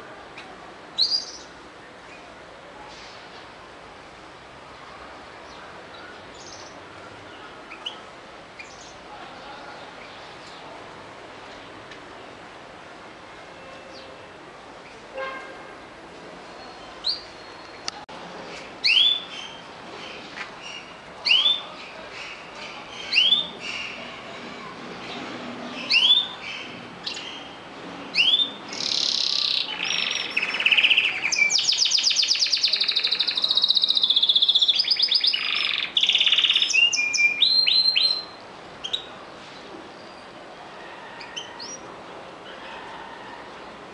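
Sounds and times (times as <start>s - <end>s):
canary chirping and trilling: 1.0s - 1.5s, 16.7s - 17.9s, 18.8s - 19.7s, 25.8s - 39.1s.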